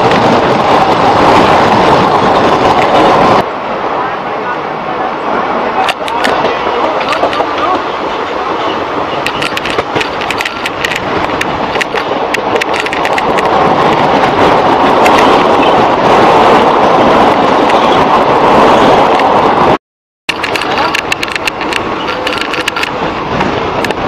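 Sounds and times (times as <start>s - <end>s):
train wheels and wind rumbling: 0.0s - 24.0s
wheels clicking over rail joints: 5.8s - 19.4s, 20.3s - 24.0s.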